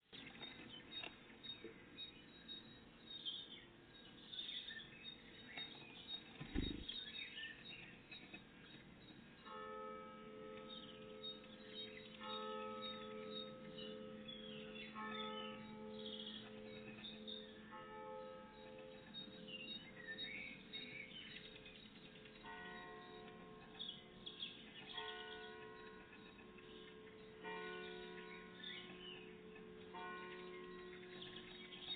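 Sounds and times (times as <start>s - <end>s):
songbirds chirping: 0.0s - 31.9s
dull thump: 6.4s - 6.9s
church bell ringing: 9.0s - 31.9s.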